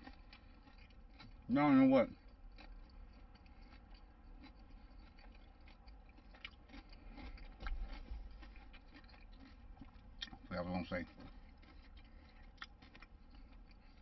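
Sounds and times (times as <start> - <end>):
wet mouth clicks chewing: 0.0 - 14.0.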